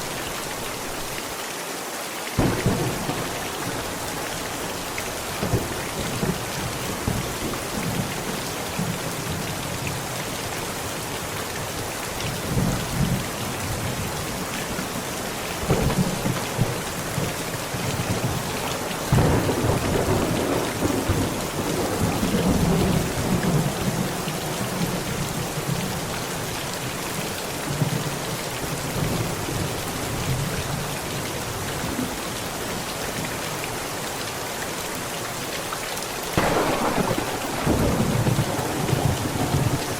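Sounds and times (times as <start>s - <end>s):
heavy rain on a tent: 0.0s - 39.9s
thunder rumbling: 2.4s - 8.9s, 15.6s - 25.8s, 36.4s - 39.9s.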